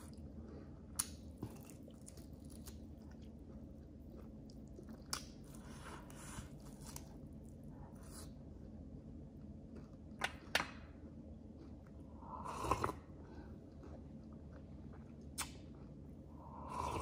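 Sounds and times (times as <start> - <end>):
person chewing and crunching food: 0.0 - 17.0
wet mouth sounds: 13.8 - 15.9.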